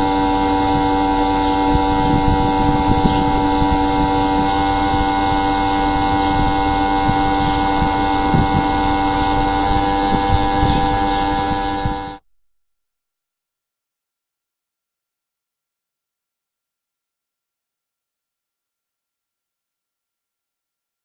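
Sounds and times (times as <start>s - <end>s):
steady electrical hum: 0.0s - 12.2s.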